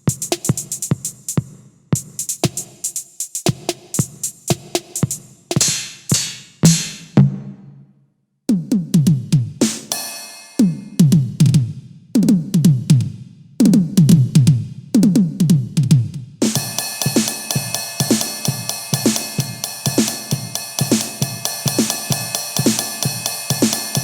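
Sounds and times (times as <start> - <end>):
electronic tom fills: 3.5 - 7.8
cymbal crash: 16.5 - 24.0
cymbal wash: 16.5 - 24.0.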